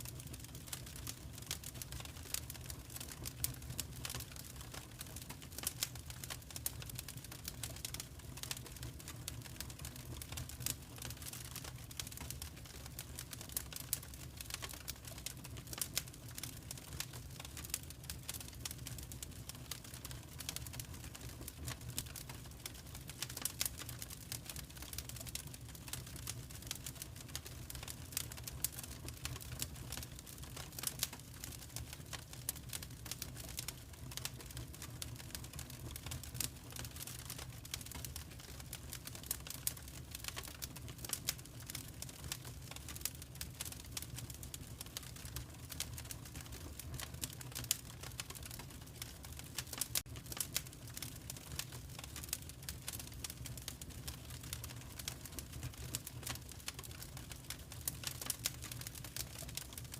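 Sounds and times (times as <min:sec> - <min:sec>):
fire crackling in fireplace: 0:00.0 - 0:59.9.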